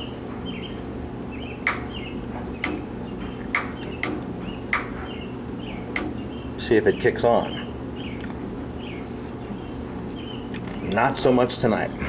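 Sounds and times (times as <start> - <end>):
sharp clicks: 2.6 - 4.9, 5.9 - 6.2.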